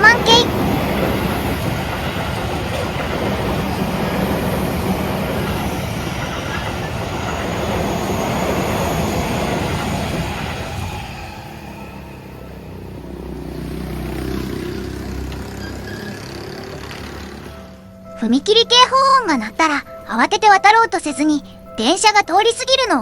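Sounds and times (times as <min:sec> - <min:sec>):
train wheels on rails: 0:00.0 - 0:17.9.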